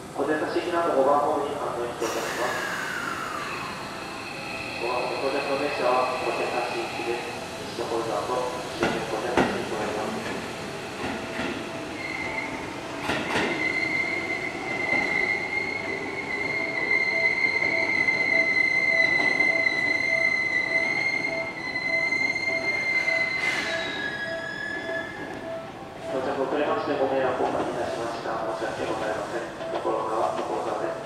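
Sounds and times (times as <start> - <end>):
train wheels squealing: 2.0 - 7.6, 11.9 - 25.4
low tone beeping: 11.7 - 26.9.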